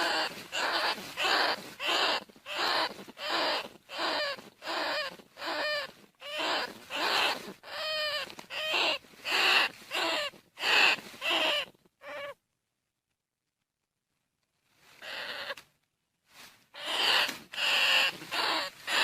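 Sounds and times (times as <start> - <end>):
rat squealing: 0.0 - 12.4, 15.0 - 15.6, 16.8 - 19.0.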